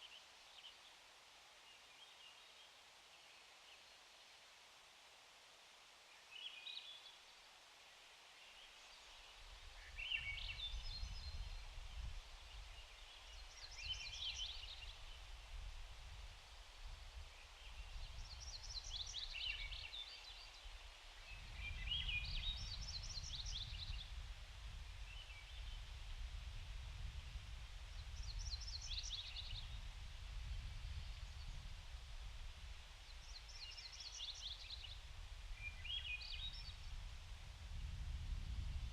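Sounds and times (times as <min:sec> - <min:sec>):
creek water hiss: 0:00.0 - 0:38.9
wind rumble on microphone: 0:09.5 - 0:20.0, 0:20.6 - 0:38.9.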